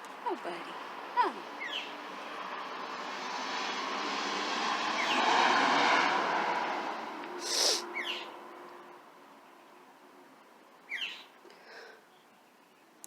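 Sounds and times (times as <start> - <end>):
passing vehicle engine: 0.0 - 10.8
small bird chirping: 1.6 - 2.0, 7.7 - 8.3, 10.9 - 11.4.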